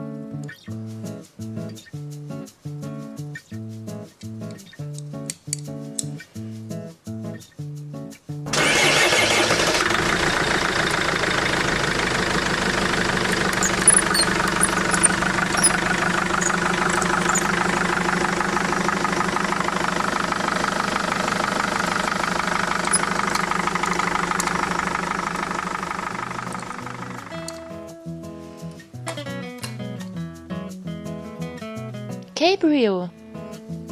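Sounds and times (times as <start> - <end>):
truck engine idling: 8.5 - 27.8.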